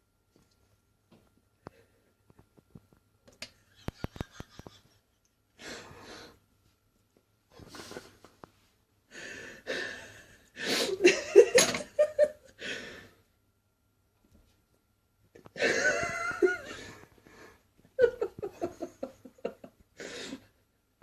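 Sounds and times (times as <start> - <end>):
person laughing: 3.6 - 5.4, 10.8 - 12.6, 15.5 - 17.0, 18.0 - 19.8.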